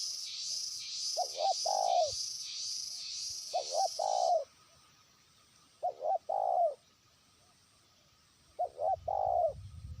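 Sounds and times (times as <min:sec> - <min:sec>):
dove cooing: 0:01.2 - 0:02.2, 0:03.5 - 0:04.5, 0:05.8 - 0:06.8, 0:08.6 - 0:09.6.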